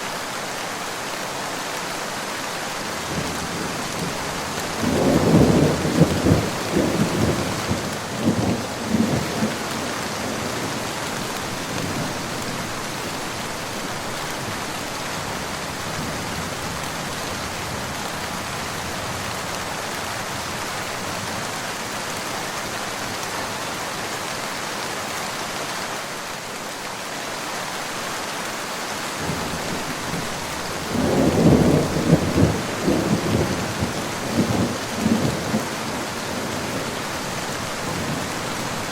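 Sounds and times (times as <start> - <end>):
rain falling: 0.0 - 38.9
thunder rumbling: 3.1 - 14.1, 29.2 - 38.9.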